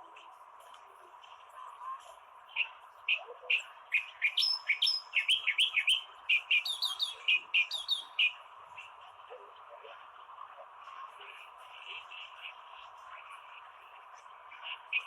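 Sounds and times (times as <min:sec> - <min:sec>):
reed warbler singing: 0:02.6 - 0:08.9, 0:14.5 - 0:15.0.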